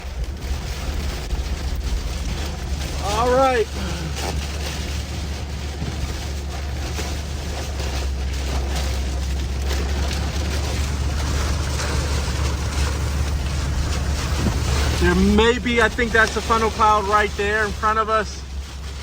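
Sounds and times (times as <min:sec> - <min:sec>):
road rumble inside vehicle: 0:00.0 - 0:19.0.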